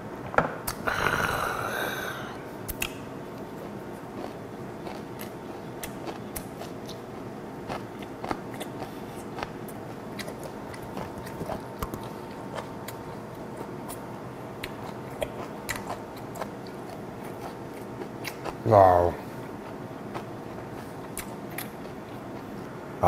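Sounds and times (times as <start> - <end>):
faint steady hum: 0.0 - 23.0
wet chewing: 3.6 - 14.0, 14.6 - 18.6, 19.6 - 22.6.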